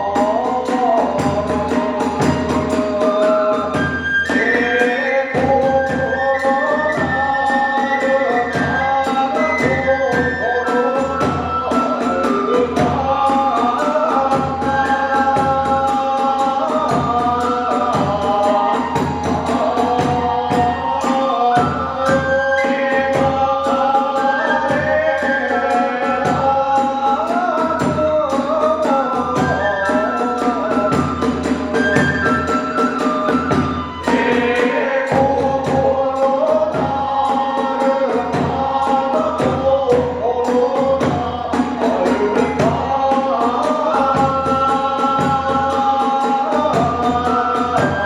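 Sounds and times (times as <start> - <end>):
fast steady drum beats: 0.0 - 48.0
bamboo flute melody: 1.2 - 13.3, 16.9 - 26.6, 29.3 - 36.8, 47.0 - 48.0.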